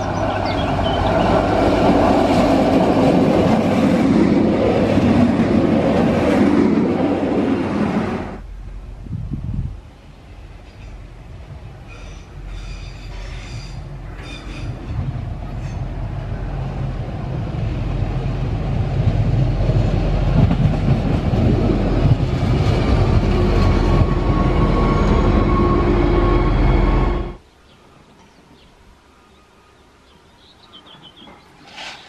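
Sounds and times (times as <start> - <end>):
diesel railcar engine and wheels: 0.0 - 29.0, 30.7 - 32.0
steady high tone: 23.4 - 27.4.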